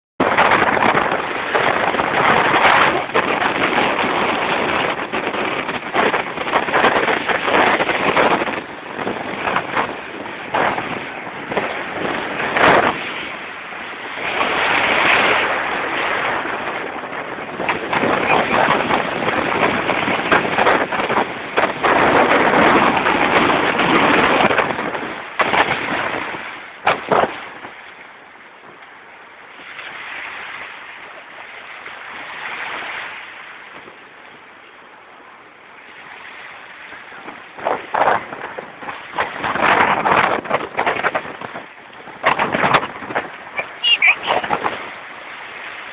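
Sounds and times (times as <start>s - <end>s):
sea waves breaking on beach: 0.2s - 45.9s
wind buffeting microphone: 0.2s - 45.9s.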